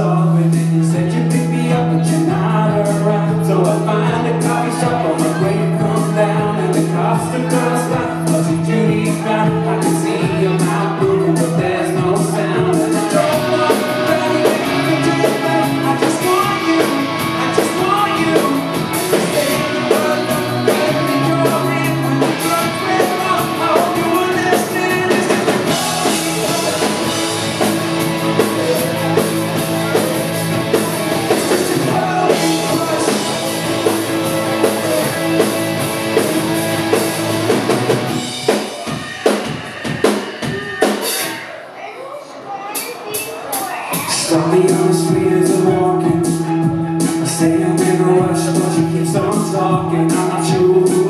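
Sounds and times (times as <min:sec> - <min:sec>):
rock band playing live: 0:00.0 - 0:41.8, 0:42.7 - 0:51.0
drum hits: 0:08.0 - 0:41.4.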